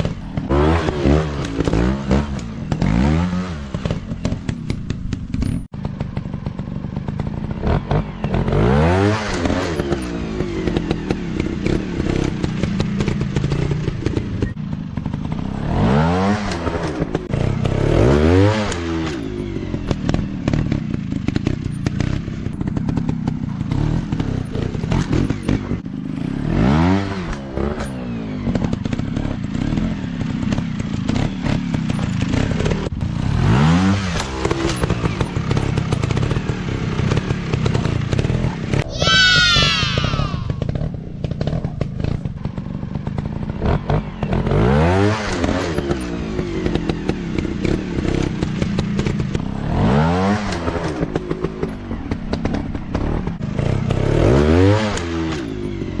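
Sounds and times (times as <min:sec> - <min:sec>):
dirt bike engine revving: 0:00.0 - 0:04.8, 0:06.2 - 0:14.4, 0:23.6 - 0:27.9.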